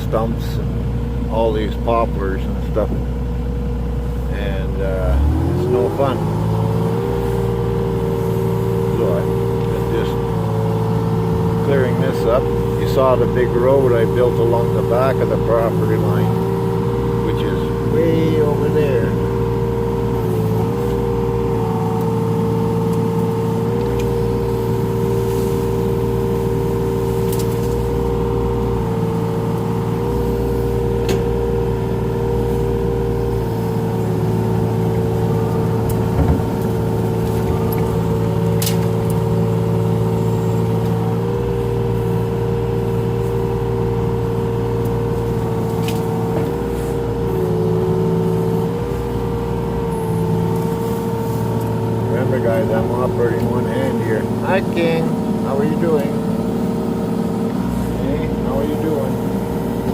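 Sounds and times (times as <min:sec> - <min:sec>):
excavator engine running: 0:00.0 - 0:59.9.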